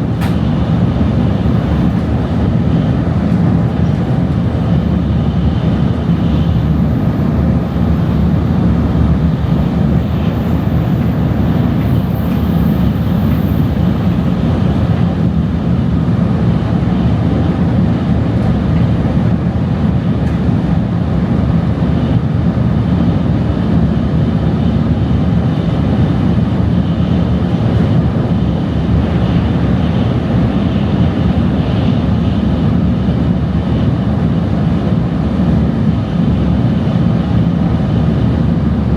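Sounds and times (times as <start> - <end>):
train interior rumble: 0.0 - 38.9.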